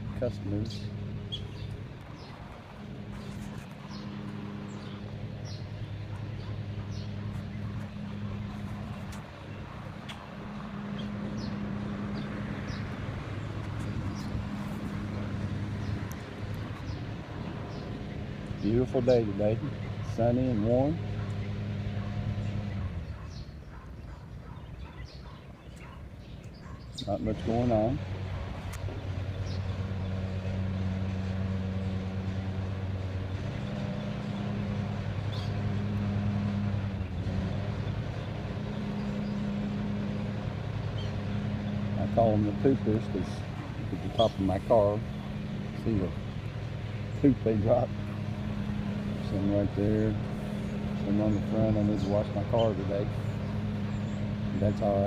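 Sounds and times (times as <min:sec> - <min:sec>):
low mechanical hum: 0:00.0 - 0:55.0
small birds chirping: 0:00.0 - 0:55.0
low droning hum: 0:28.0 - 0:55.0.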